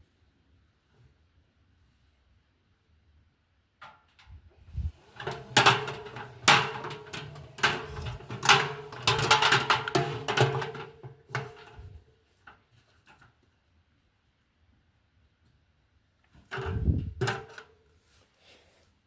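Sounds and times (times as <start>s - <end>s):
washing machine motor humming: 4.9s - 10.4s
laundry thudding in drum: 5.0s - 11.8s.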